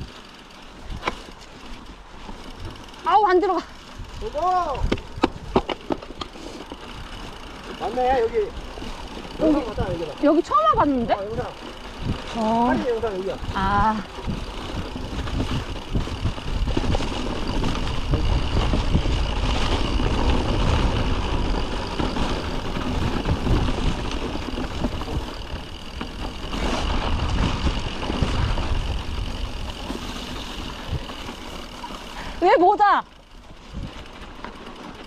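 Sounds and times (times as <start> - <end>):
bike knocking and rattling: 0.0 - 35.0
wind and tyre rumble: 0.0 - 35.0.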